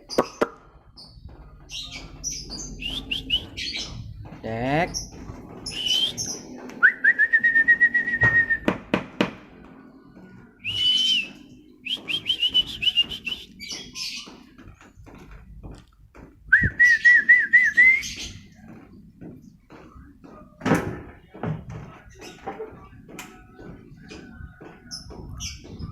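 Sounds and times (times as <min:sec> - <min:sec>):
bird singing whistled phrases: 0:02.7 - 0:03.8, 0:05.7 - 0:08.7, 0:10.6 - 0:13.8, 0:16.5 - 0:18.4.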